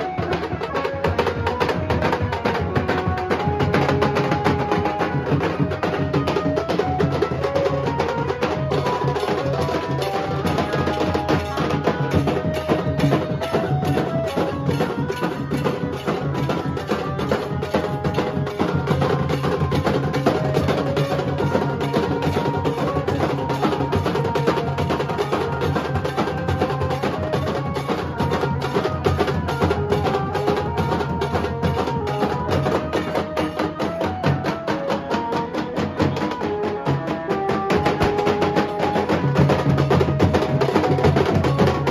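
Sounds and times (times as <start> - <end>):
dhol and tasha drums beating: 0.0 - 41.9.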